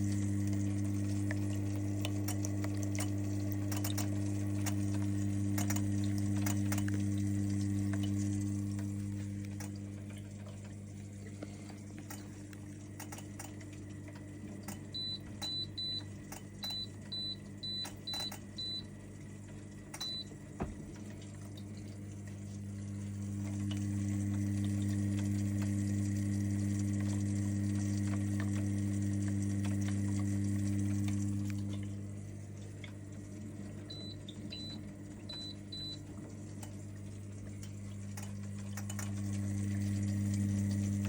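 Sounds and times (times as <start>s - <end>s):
hot tub pump humming: 0.0s - 41.0s
faint clicking: 26.9s - 31.9s.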